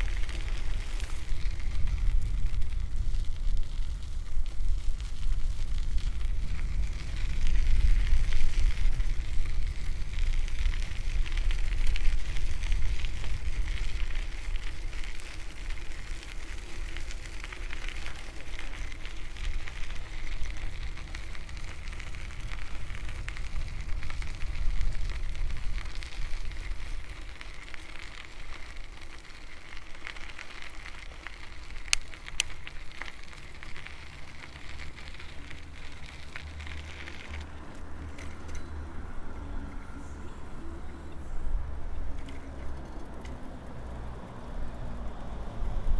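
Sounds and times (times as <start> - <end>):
wind on microphone: 0.0 - 17.8, 18.6 - 27.3
bicycle tyres rolling on path: 0.0 - 45.9.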